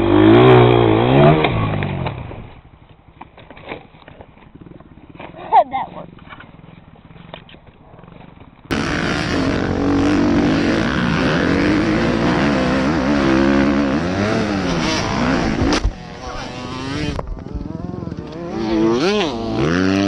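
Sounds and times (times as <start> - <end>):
dirt bike engine revving: 0.0 - 2.5, 8.7 - 20.0.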